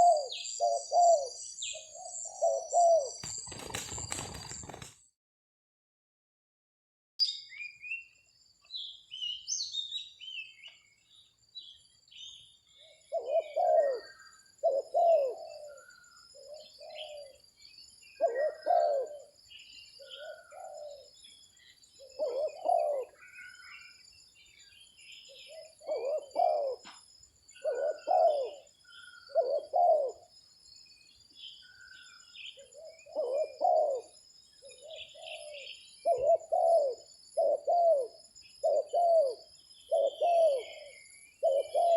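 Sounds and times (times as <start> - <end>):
dove cooing: 0.0 - 4.8, 12.8 - 17.4, 18.2 - 19.4, 20.0 - 21.2, 22.0 - 23.9, 25.3 - 30.3, 31.7 - 41.9
small birds chirping: 0.0 - 4.9, 7.2 - 41.9.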